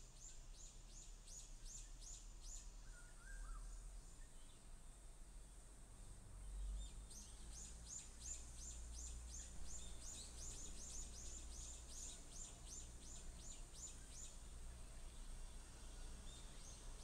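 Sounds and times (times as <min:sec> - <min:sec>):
bird singing: 0:00.0 - 0:04.7, 0:06.4 - 0:17.0
faint low rumble: 0:09.0 - 0:17.0.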